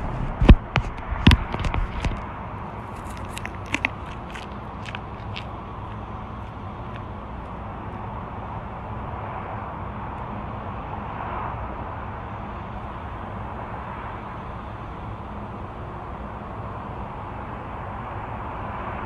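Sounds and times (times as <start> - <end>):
diesel engine idling: 2.2 - 19.0.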